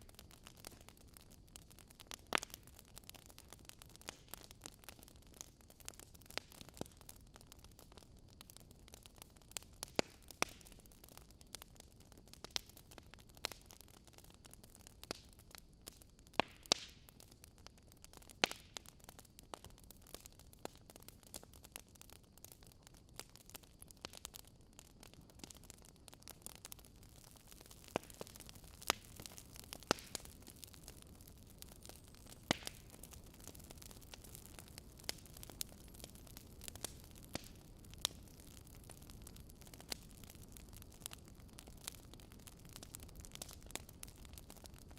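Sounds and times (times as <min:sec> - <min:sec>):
fire crackling and popping: 0:00.0 - 0:44.9.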